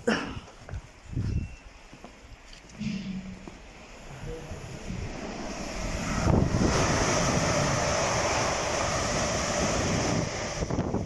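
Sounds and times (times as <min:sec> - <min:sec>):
fast train passing: 0:02.8 - 0:11.0.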